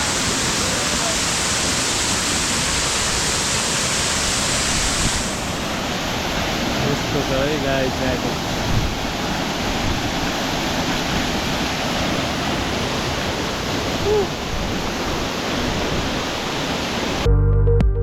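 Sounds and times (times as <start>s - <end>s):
waterfall pouring: 0.0s - 8.4s
music: 17.3s - 18.0s.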